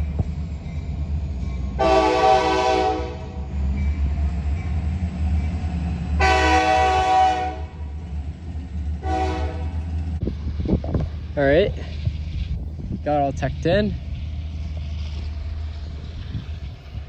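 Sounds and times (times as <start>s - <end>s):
train air horn blasts: 1.8s - 3.4s, 6.2s - 7.8s, 9.0s - 9.8s
steady low rumble: 7.6s - 17.0s.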